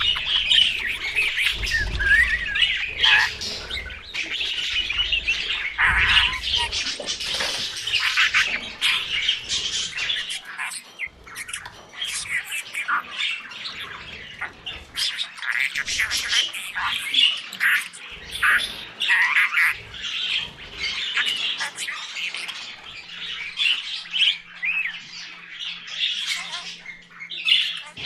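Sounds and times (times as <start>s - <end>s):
budgerigar chirping and chattering: 0.0s - 28.0s.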